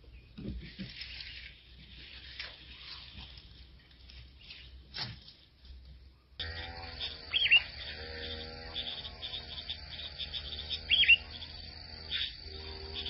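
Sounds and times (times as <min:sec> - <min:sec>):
cricket-like trill: 0:06.4 - 0:13.0
high bird chirps: 0:06.5 - 0:13.0.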